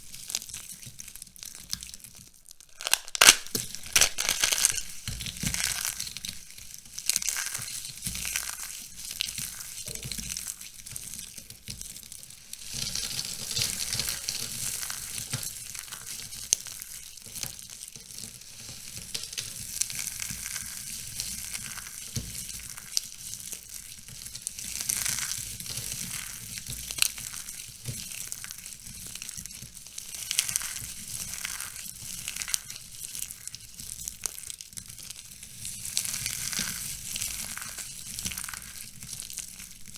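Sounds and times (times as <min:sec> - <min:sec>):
dry soap crackling when crushed: 0:02.4 - 0:08.6.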